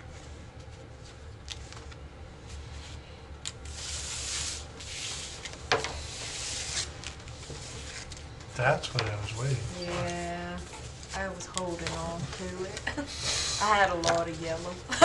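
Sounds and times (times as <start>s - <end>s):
cards rustling on table: 3.5s - 8.3s.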